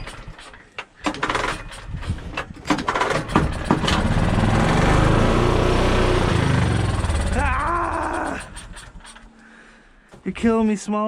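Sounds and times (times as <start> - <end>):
pull-start engine sputtering pulls: 0.0 - 9.6
small engine running: 2.9 - 9.3.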